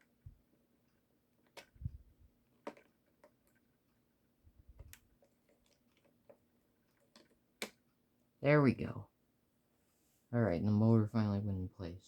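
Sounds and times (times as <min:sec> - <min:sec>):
small plastic parts clicking: 0:00.0 - 0:04.0, 0:04.7 - 0:07.9.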